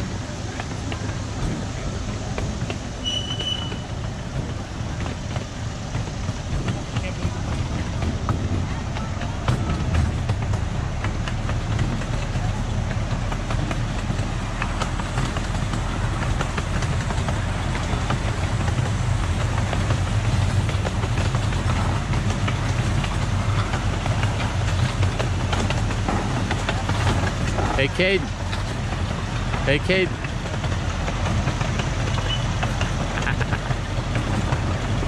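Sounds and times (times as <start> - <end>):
ride train rumbling on track: 0.0 - 35.0.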